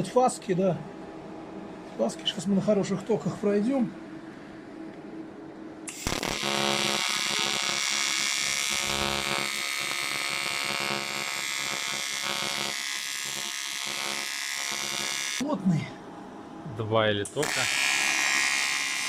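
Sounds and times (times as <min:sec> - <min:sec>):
welding arc buzzing: 0:05.8 - 0:15.4, 0:17.4 - 0:19.0
welding arc crack: 0:05.9 - 0:15.4, 0:17.4 - 0:19.0.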